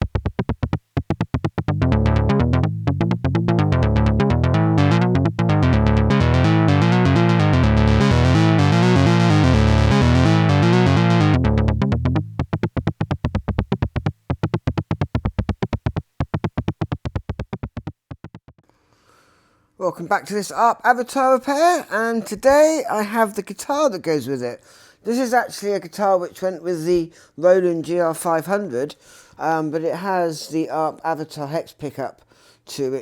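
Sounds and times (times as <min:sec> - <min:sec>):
electronic synthesizer music: 0:00.0 - 0:18.4.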